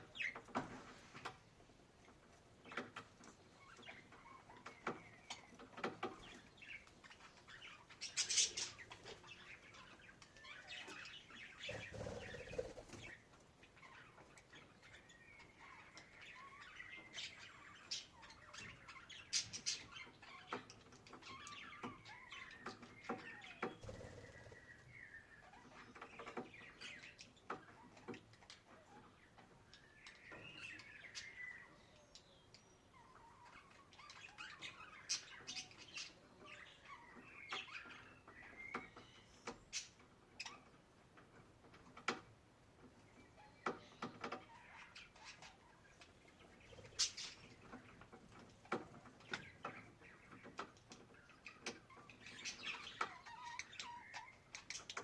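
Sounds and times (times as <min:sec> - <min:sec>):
budgerigars chirping: 0:03.6 - 0:20.6, 0:44.5 - 0:48.0.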